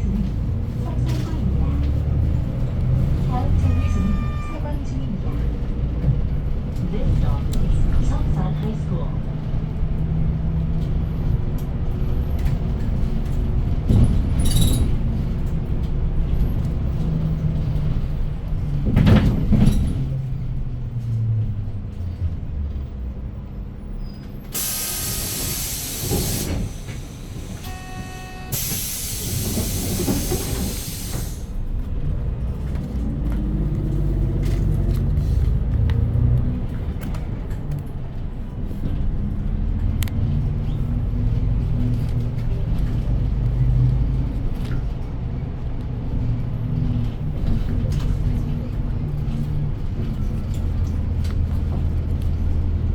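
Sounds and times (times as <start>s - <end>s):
bus engine running: 0.0s - 52.9s
compressed-air hiss: 24.6s - 27.7s, 28.5s - 31.5s.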